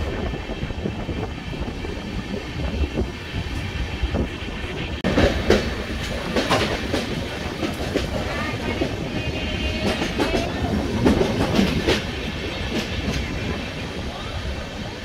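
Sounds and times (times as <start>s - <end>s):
train wheels rumbling on rails: 0.0s - 15.0s
wheels clacking over rail joints: 2.3s - 14.0s.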